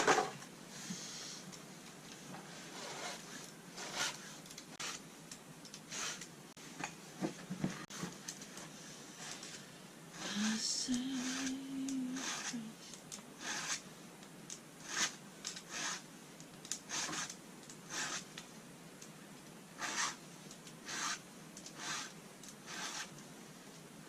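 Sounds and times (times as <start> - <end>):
short rustling and scraping: 0.0 - 5.0.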